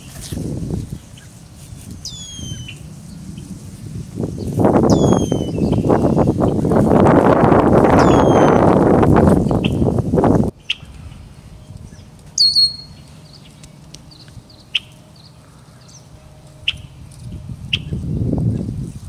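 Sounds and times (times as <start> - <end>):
low rustling noise: 0.0 - 19.0
bird chip notes: 1.1 - 3.5, 4.4 - 6.6, 7.9 - 8.7, 10.6 - 18.0.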